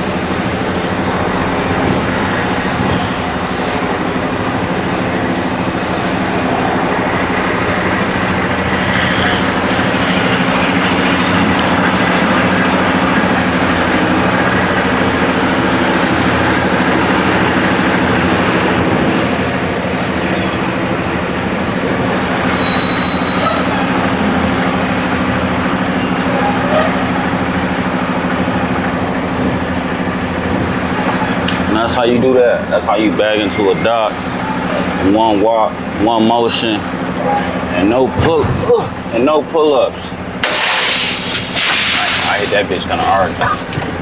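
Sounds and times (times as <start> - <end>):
diesel truck engine rumbling: 0.0 - 44.0
high-pitched squeal: 8.5 - 32.0.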